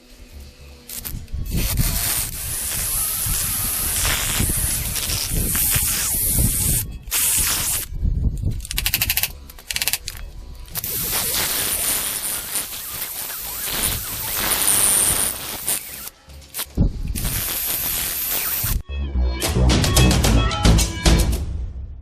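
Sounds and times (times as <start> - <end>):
hissing spray jet: 0.9 - 7.9, 10.7 - 16.1, 17.2 - 18.8
fast pulsed rattle: 0.9 - 16.1.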